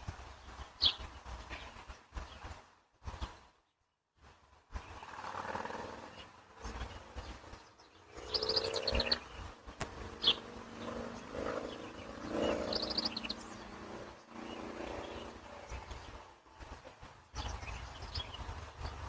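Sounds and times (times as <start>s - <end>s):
animal low wavering calls: 8.1s - 9.4s
high chirps: 11.6s - 13.6s.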